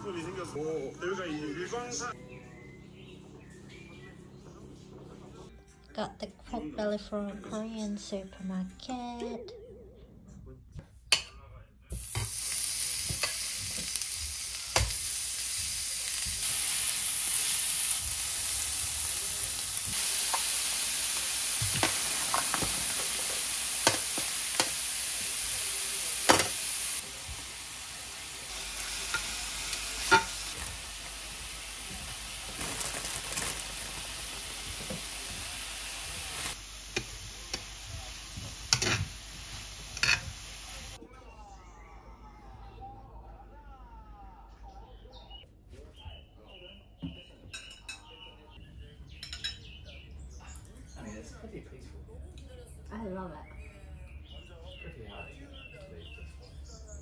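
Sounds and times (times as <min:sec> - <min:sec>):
food sizzling in a pan: 0:11.9 - 0:41.0
metal tongs scraping pan: 0:30.0 - 0:30.5, 0:39.9 - 0:40.3.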